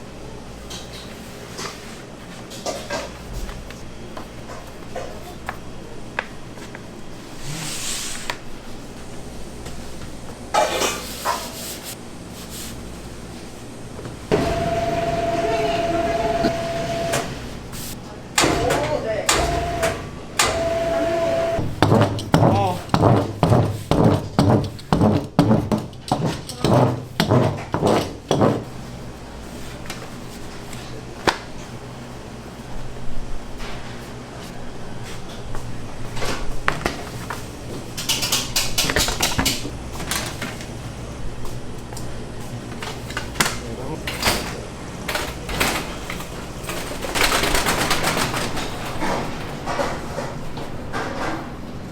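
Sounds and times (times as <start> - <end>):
kitchen knocks and clatters: 2.4 - 3.8, 10.5 - 11.6, 21.6 - 28.9, 36.1 - 40.7, 42.8 - 51.6
appliance humming: 12.0 - 24.8, 25.9 - 51.0
utensils clattering: 42.8 - 51.5.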